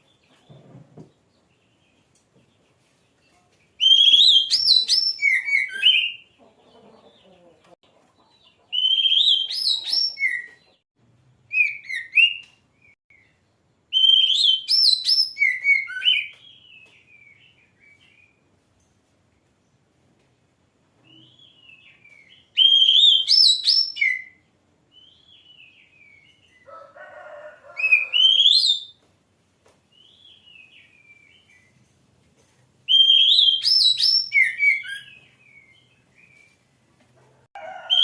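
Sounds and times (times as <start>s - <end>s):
bird singing whistled trills: 3.8s - 6.3s, 8.8s - 10.6s, 13.9s - 18.4s, 21.1s - 24.4s, 27.9s - 29.0s, 32.9s - 36.5s.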